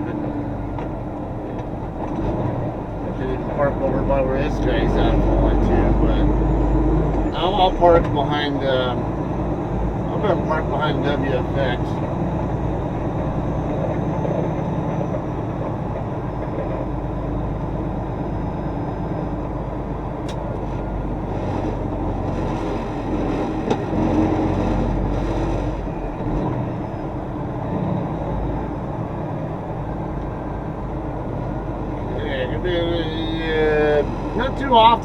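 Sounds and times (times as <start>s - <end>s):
diesel truck engine running: 0.0s - 35.0s.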